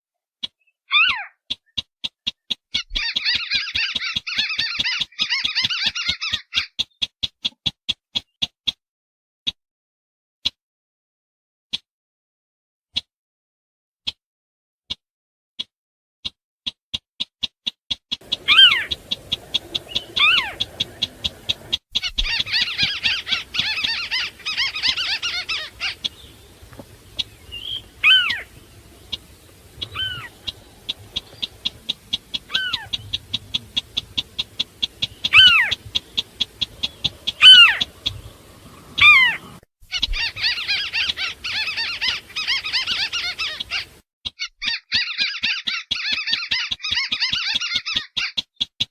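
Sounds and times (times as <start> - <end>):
sharply falling bird calls: 0.4 - 8.6, 18.1 - 48.9
rapid ticking bird notes: 0.4 - 8.8, 16.9 - 48.9
harsh bird chattering: 0.9 - 7.6, 18.2 - 48.8.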